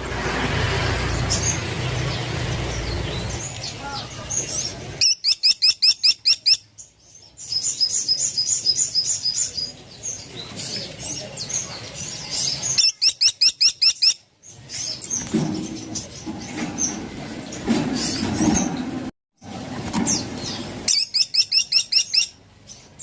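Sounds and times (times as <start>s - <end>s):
woodpecker calling: 3.2s - 6.7s, 12.2s - 14.3s, 20.9s - 22.4s.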